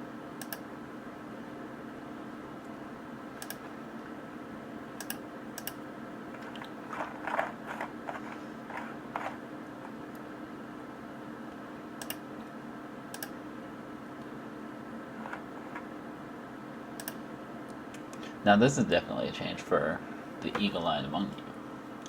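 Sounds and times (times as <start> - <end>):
steady hum: 0.0 - 22.0
sharp clicks: 0.4 - 0.6, 3.4 - 3.6, 12.0 - 12.2, 13.2 - 13.4, 17.0 - 17.2.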